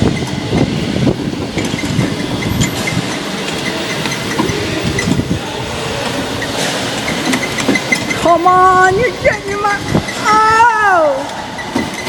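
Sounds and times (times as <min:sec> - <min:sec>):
go-kart engine running: 0:00.0 - 0:12.0
kart chassis rattling: 0:00.0 - 0:12.0.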